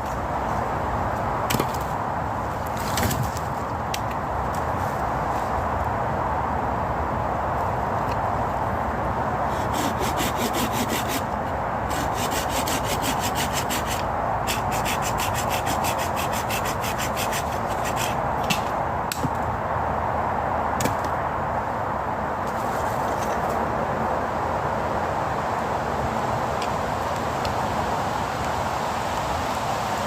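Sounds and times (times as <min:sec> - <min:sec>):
hand tool rasping wood: 0:09.5 - 0:11.3, 0:11.9 - 0:18.2.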